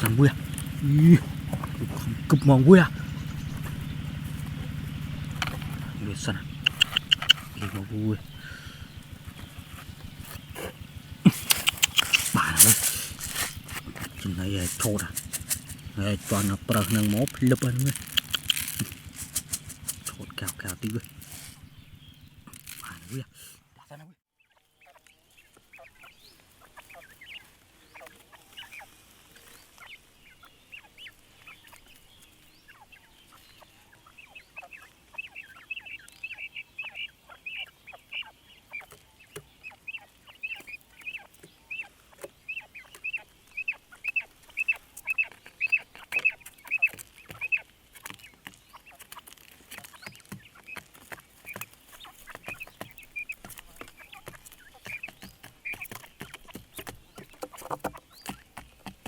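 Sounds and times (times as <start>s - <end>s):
faint clicks and rustles: 0.0s - 23.7s, 40.6s - 59.0s
quail peeping calls: 0.0s - 59.0s.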